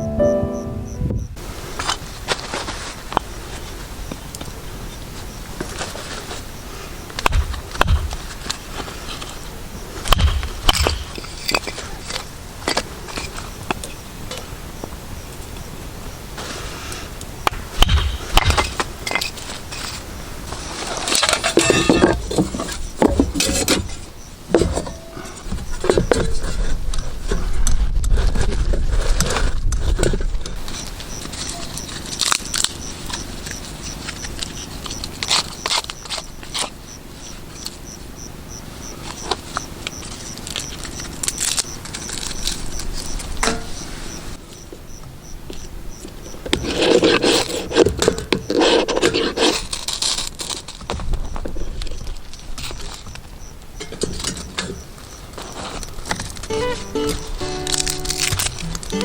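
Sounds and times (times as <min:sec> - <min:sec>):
camping gear rustling and scraping: 0:01.4 - 0:04.0, 0:05.6 - 0:06.9, 0:18.6 - 0:37.5, 0:46.5 - 0:53.1, 0:53.9 - 0:59.0.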